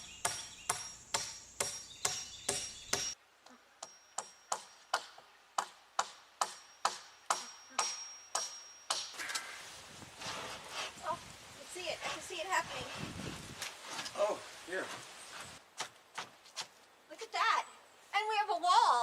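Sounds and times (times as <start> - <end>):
ticking with bright ring: 6.5 - 9.2.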